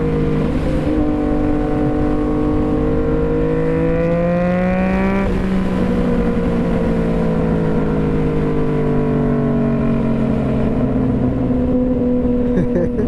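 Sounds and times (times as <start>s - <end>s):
wind rush on microphone: 0.0s - 9.0s
motorcycle engine: 0.0s - 13.0s.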